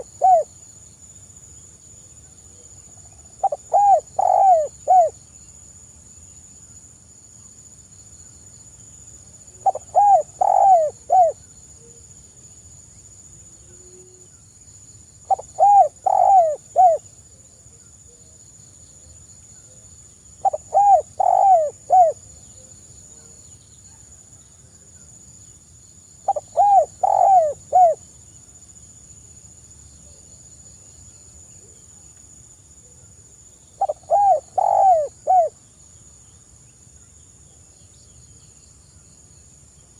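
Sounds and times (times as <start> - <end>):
dove cooing: 0.0 - 0.5, 3.4 - 5.2, 9.6 - 11.4, 15.3 - 17.0, 20.4 - 22.2, 26.3 - 28.0, 33.8 - 35.5
faint high-pitched hiss: 0.0 - 39.9.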